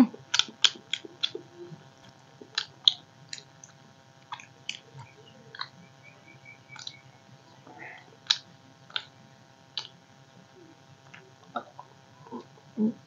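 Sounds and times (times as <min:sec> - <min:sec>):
wet chewing: 0:00.0 - 0:05.8, 0:06.8 - 0:07.0, 0:07.7 - 0:10.0
lip-smacks and mouth clicks: 0:00.2 - 0:05.8, 0:06.8 - 0:07.0, 0:08.2 - 0:10.0.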